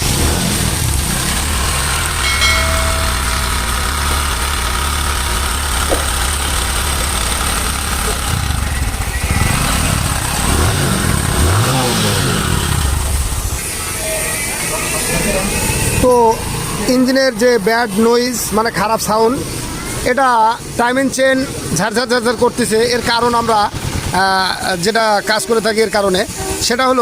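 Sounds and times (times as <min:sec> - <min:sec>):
motorcycle engine idling: 0:00.1 - 0:13.6.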